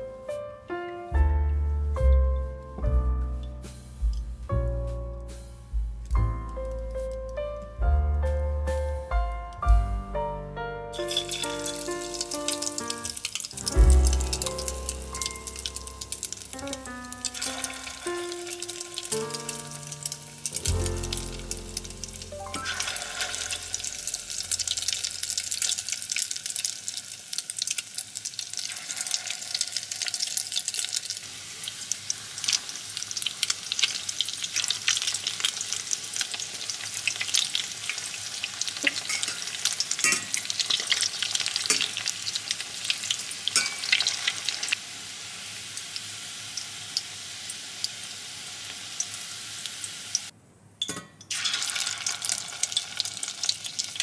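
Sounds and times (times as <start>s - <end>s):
food sizzling in hot oil: 11.0s - 50.3s, 51.3s - 54.0s.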